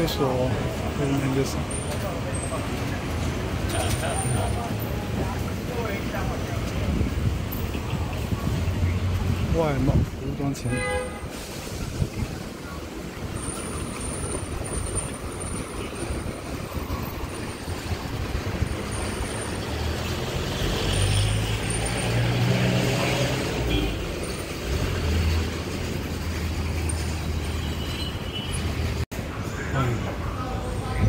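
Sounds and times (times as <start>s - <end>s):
road traffic noise: 0.0s - 31.0s.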